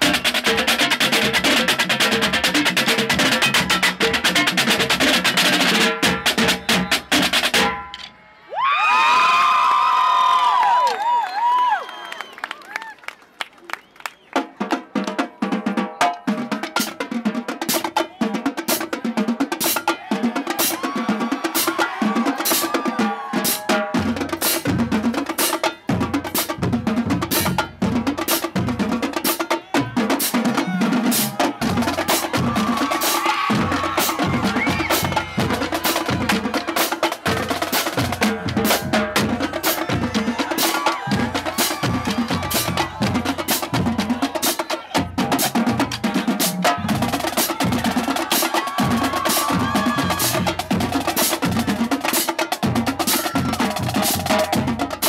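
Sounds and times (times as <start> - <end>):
pitched drums: 0.0 - 8.2, 14.3 - 55.0
snare drum rolls: 19.6 - 55.0
bass drums: 23.2 - 52.0.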